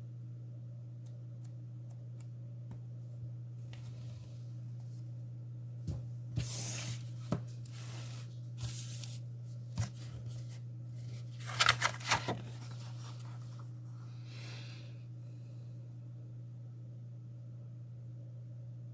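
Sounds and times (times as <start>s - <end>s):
steady low hum: 0.0s - 18.9s
rustling scrapes: 6.4s - 13.7s.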